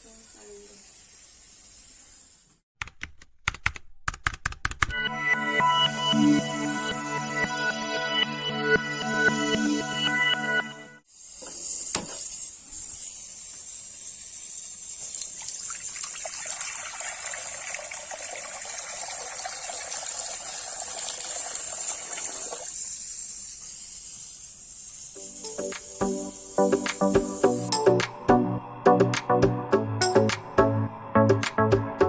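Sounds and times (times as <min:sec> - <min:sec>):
water running from tap: 0:11.2 - 0:23.8.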